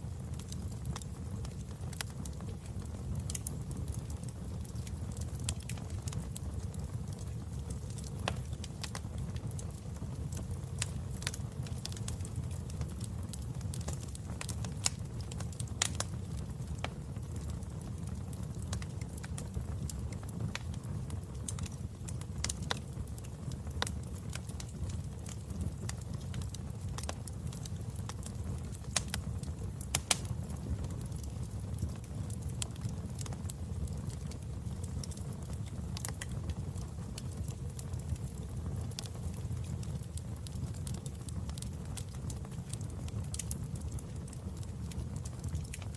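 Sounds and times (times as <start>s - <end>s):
logs crackling and popping: 0.0s - 45.9s
wood fire burning: 0.0s - 45.9s.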